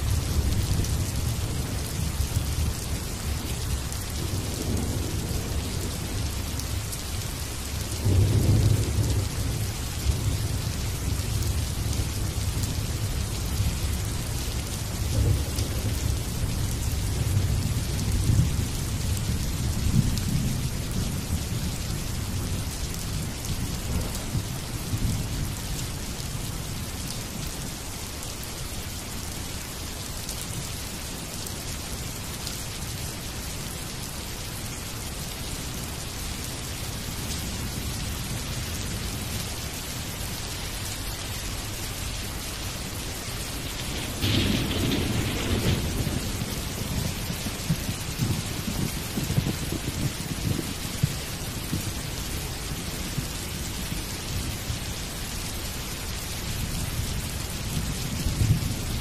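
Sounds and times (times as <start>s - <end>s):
low rumble of thunder: 0.0s - 27.9s, 43.0s - 55.4s, 56.0s - 59.0s
steady rain falling: 0.0s - 59.0s.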